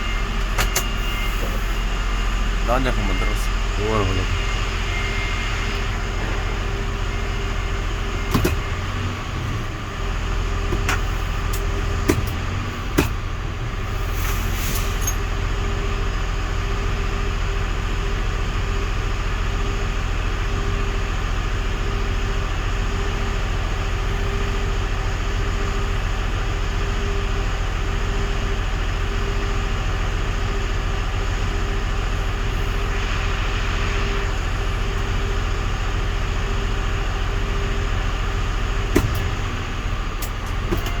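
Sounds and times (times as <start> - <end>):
truck engine idling: 0.0 - 41.0
sharp clicks and knocks: 8.3 - 8.7, 38.9 - 39.4
short hiss: 14.0 - 15.0.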